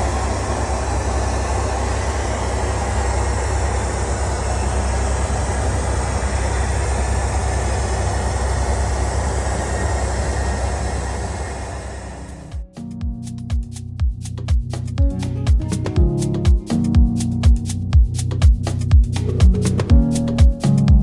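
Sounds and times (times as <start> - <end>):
airliner cabin engine rumble: 0.0 - 12.6.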